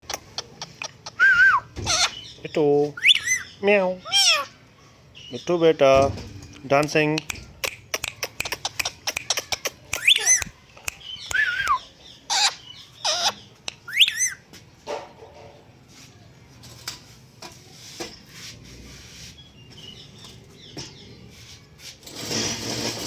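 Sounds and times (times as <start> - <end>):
parrot whistled calls and squawks: 0.1 - 2.4, 3.0 - 4.6, 7.7 - 14.4
parrot clicks: 6.8 - 11.4.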